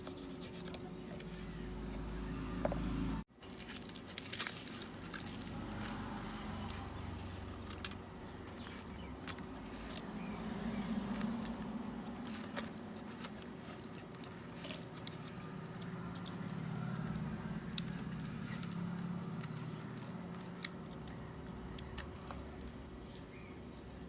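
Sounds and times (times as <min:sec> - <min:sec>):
small tools clicking and tapping: 0:11.1 - 0:23.3.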